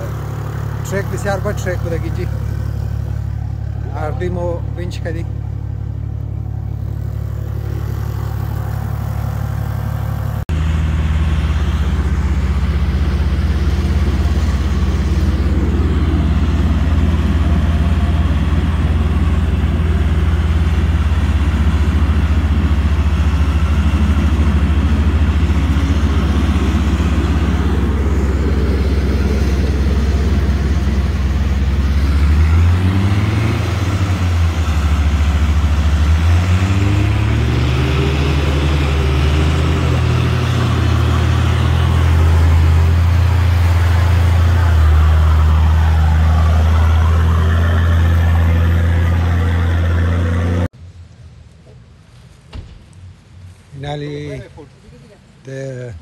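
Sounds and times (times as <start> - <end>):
car engine revving: 0.0 - 50.7.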